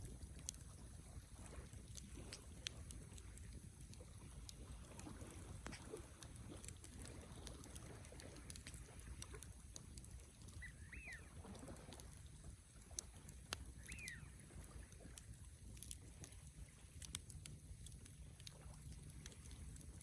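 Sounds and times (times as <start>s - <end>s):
campfire crackling and popping: 0.0s - 20.0s
bird calling: 10.5s - 11.4s, 13.8s - 14.4s.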